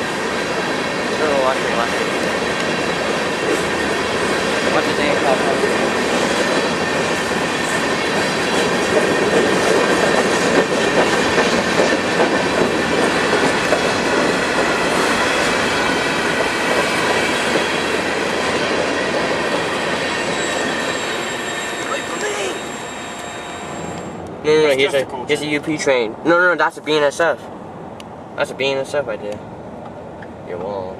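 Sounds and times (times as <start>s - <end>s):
train wheels clattering on rail: 0.0s - 22.4s
wheel squeal: 20.0s - 24.2s.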